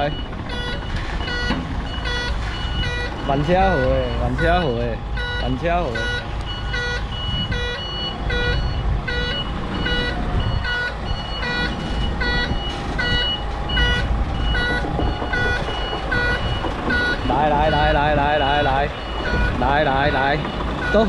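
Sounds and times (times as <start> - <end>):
truck engine running: 0.0 - 21.0
truck reversing alarm beeping: 0.0 - 21.0.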